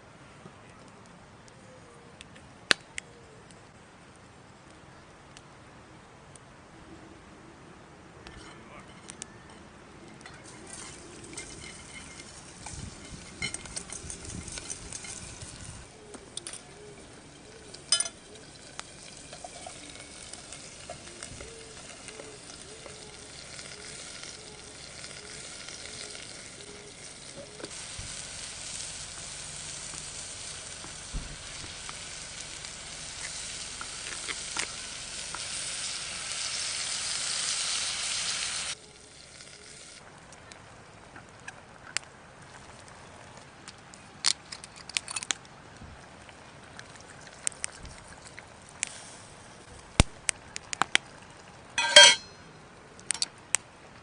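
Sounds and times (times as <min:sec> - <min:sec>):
meat sizzling on a griddle: 0:16.8 - 0:40.0.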